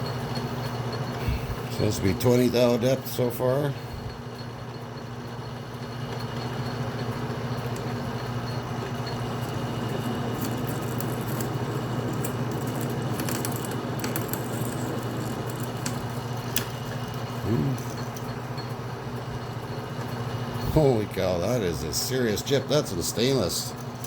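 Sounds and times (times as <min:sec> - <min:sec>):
lathe motor hum: 0:03.8 - 0:22.3
metal cutting ticks and crackles: 0:07.6 - 0:18.8.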